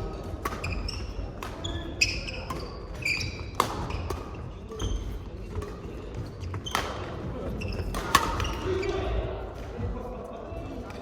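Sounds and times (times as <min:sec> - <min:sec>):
racket striking shuttlecock: 0:00.2 - 0:01.8, 0:02.4 - 0:05.8, 0:07.9 - 0:08.6
shoes squeaking on floor: 0:00.2 - 0:09.2.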